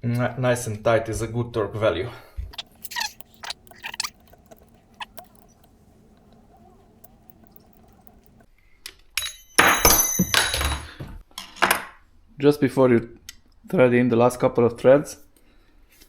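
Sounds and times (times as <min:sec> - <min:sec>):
small metal parts clicking: 0:02.6 - 0:08.5.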